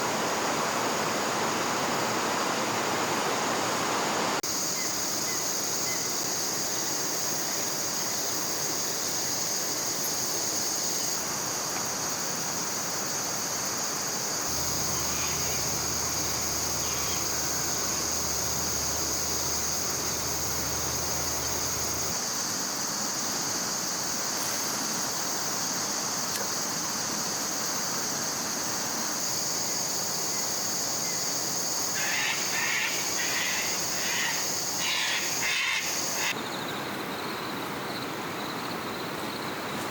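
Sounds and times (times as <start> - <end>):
river water flowing: 0.0 - 4.4, 6.6 - 23.0
insects droning: 0.0 - 39.9
low hum: 14.5 - 22.1.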